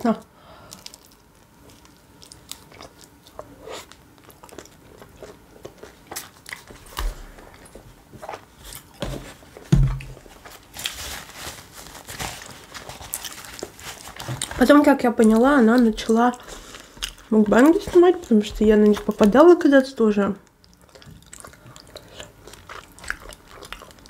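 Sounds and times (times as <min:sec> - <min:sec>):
chewing with mouth smacks: 0:00.7 - 0:09.0, 0:12.8 - 0:19.4, 0:20.4 - 0:24.0.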